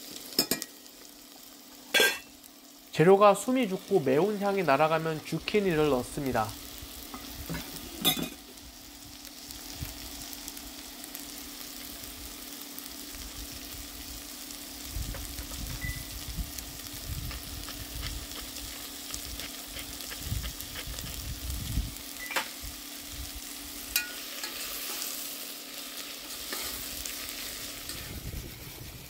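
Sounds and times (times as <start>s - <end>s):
vegetables sizzling in a pot: 0.0s - 29.0s.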